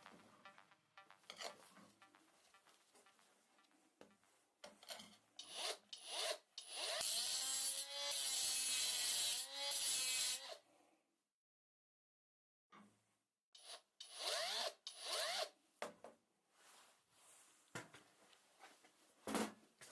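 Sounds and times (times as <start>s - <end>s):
rotary tool grinding: 4.8s - 10.6s, 13.6s - 15.5s.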